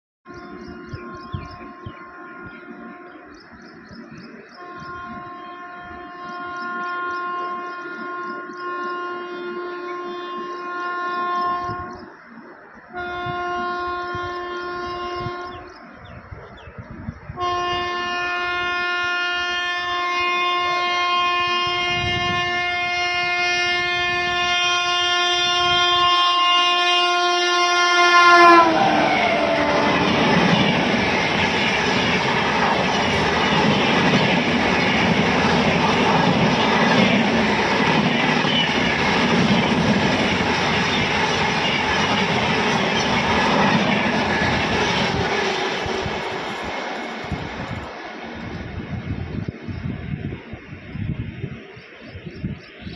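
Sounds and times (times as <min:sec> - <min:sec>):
train horn blasts: 0:00.3 - 0:03.4, 0:04.6 - 0:12.1, 0:12.9 - 0:15.7, 0:17.4 - 0:31.8
train wheels clattering over rails: 0:29.4 - 0:48.6.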